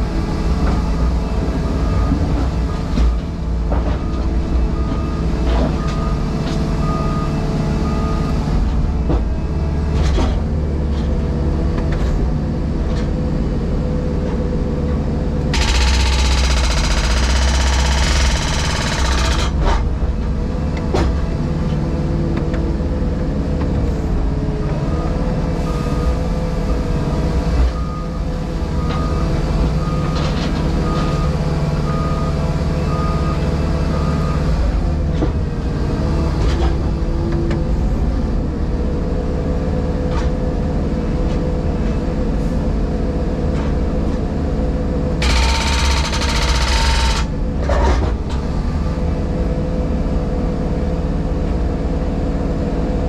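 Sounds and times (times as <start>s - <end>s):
diesel engine and hydraulics running: 0.0s - 53.0s
warning alarm beeping: 15.6s - 19.4s, 45.2s - 47.3s.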